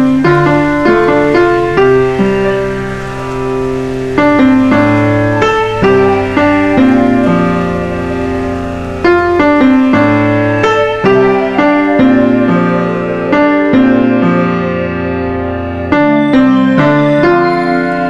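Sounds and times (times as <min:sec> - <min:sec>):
gentle piano chords: 0:00.0 - 0:18.0.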